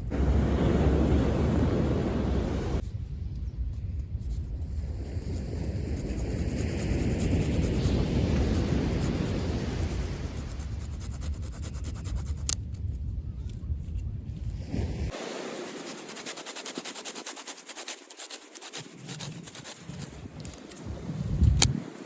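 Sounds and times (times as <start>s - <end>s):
surf: 0.0s - 2.8s
low rumble: 0.0s - 6.3s
wind: 0.0s - 22.0s.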